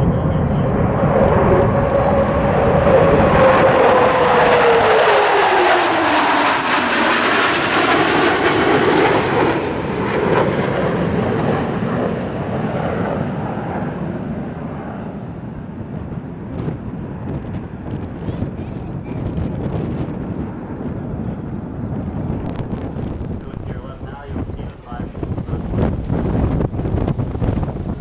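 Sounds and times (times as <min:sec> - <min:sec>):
aircraft engine roar passing: 0:00.0 - 0:28.0
jet whine falling in pitch: 0:22.4 - 0:24.8.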